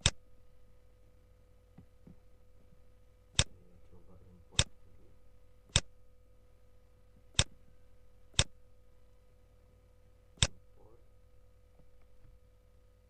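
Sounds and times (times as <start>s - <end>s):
faint steady hum: 0.0s - 13.0s
computer mouse clicking: 7.4s - 7.6s.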